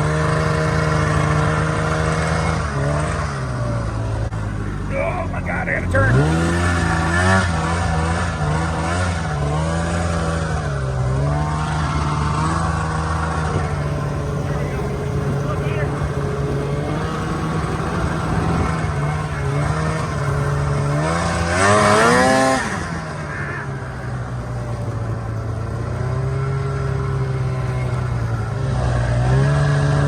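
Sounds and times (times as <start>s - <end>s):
snowmobile engine revving: 0.0s - 30.0s.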